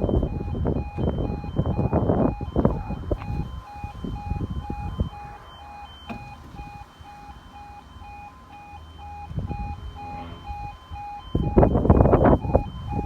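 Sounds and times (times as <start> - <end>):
low rumble: 0.0 - 8.2
pulsed electronic alarm beeps: 0.0 - 13.0.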